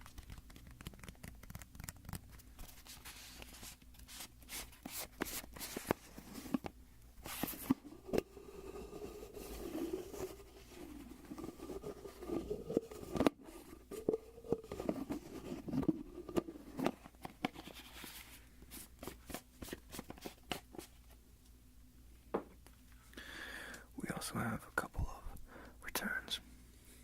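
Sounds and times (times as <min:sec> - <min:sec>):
plastic bottle rubbing: 0:07.3 - 0:18.2.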